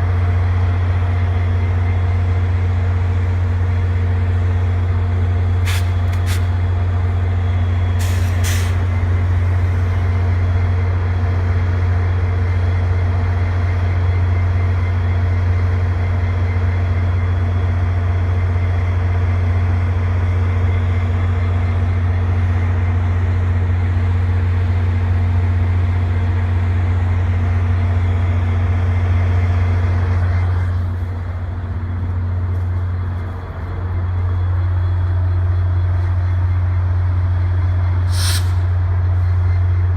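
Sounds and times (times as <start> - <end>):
diesel locomotive humming: 0.0 - 39.9
sharp air hisses: 5.6 - 6.5, 8.0 - 8.8, 38.0 - 38.8.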